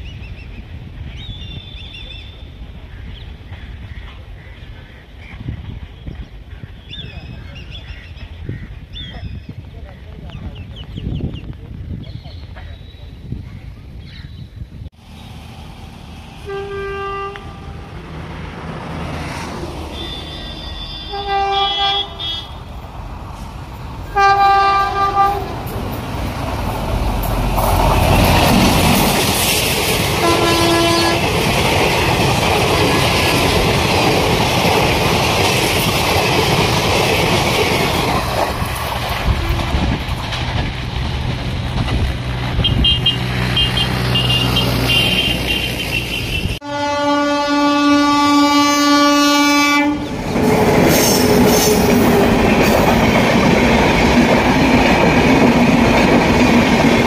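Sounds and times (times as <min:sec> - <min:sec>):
passing train rumble: 0:00.0 - 0:57.0
train horn blasts: 0:16.4 - 0:18.0, 0:19.9 - 0:22.6, 0:24.1 - 0:25.6, 0:30.2 - 0:31.3, 0:39.2 - 0:40.0, 0:42.6 - 0:50.1.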